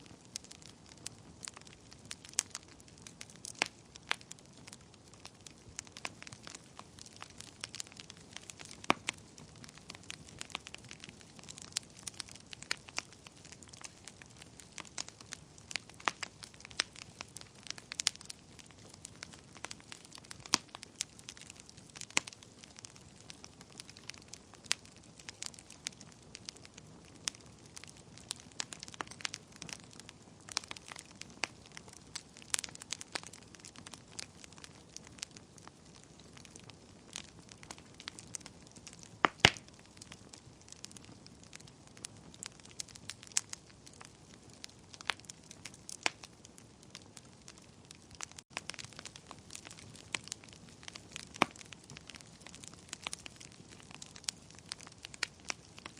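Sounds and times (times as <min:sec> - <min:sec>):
wood fire crackling and popping: 0:00.0 - 0:55.9.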